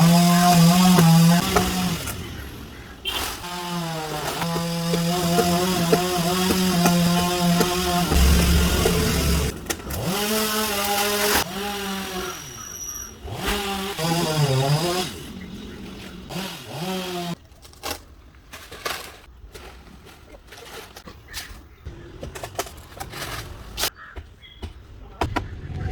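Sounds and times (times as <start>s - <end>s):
chainsaw cutting wood: 0.0s - 2.2s, 3.1s - 15.3s, 16.3s - 17.4s.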